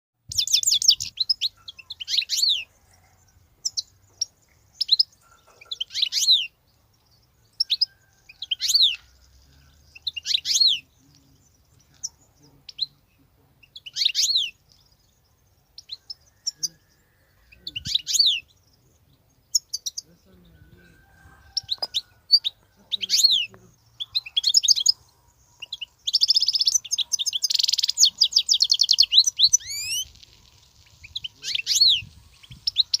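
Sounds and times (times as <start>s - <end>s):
finch twittering: 3.6s - 6.6s, 21.5s - 33.0s.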